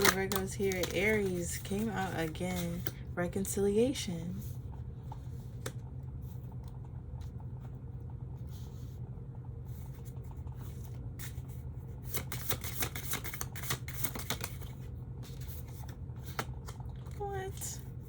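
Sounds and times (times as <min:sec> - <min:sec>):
cards being shuffled: 0:00.0 - 0:03.0, 0:10.8 - 0:17.2
steady low hum: 0:00.0 - 0:18.0.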